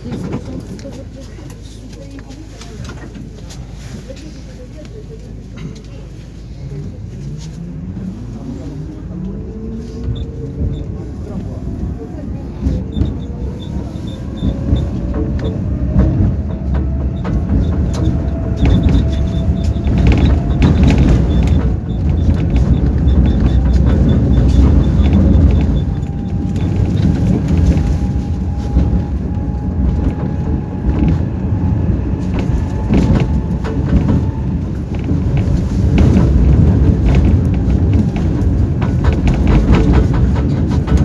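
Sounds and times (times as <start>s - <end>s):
tram wheels rumbling on rails: 0.0s - 41.0s
clicks of wheels on track: 9.2s - 41.0s.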